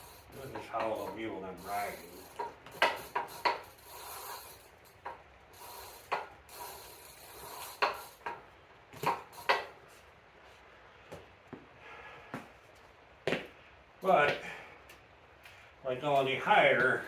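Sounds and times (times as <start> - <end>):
bike handling clicks and knocks: 0.1 - 9.8.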